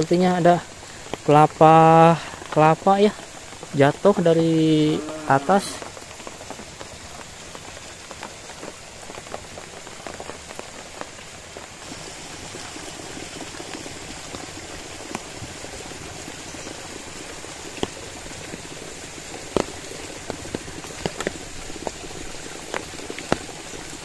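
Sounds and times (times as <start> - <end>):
rain falling: 0.0 - 24.0
drops ticking: 11.8 - 24.0.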